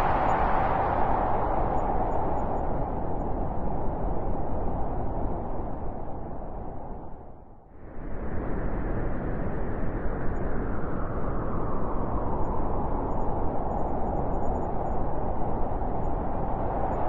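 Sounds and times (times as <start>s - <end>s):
wind blowing: 0.0s - 7.0s.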